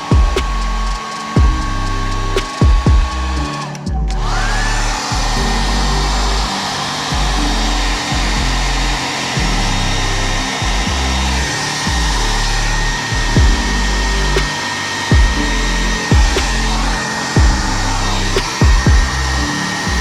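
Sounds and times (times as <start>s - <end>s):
hair dryer whining: 4.3s - 20.0s.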